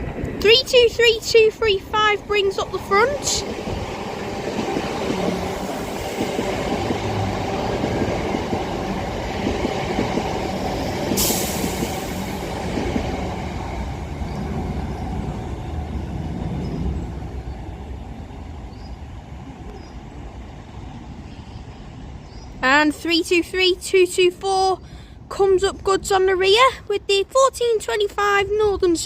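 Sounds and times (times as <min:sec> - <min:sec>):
train rumbling past: 0:00.0 - 0:27.0
short hiss: 0:11.2 - 0:12.1.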